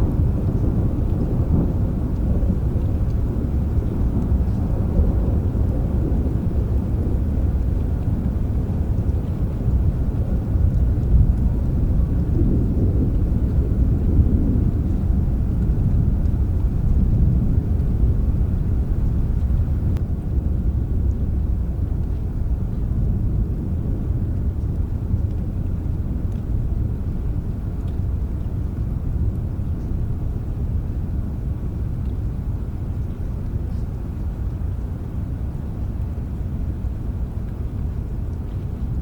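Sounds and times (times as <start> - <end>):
distant thunder rumble: 0.0 - 20.0
rain: 0.0 - 39.0
faint drop ticks: 26.3 - 26.5.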